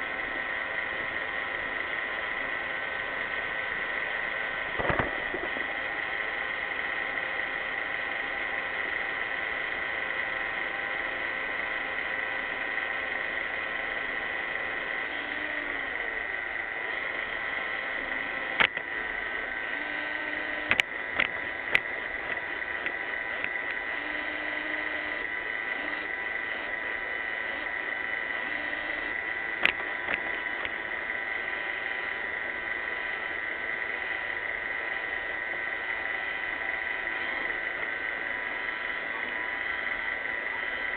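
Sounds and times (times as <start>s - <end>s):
sharp knocks: 4.8s - 5.6s.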